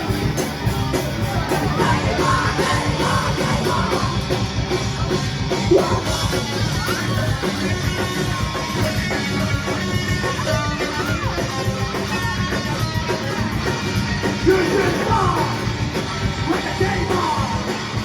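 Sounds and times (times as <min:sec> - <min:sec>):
heavy rock band playing: 0:00.0 - 0:18.0
shouted vocals: 0:01.2 - 0:04.4, 0:05.6 - 0:06.9, 0:14.3 - 0:15.8, 0:16.4 - 0:17.8.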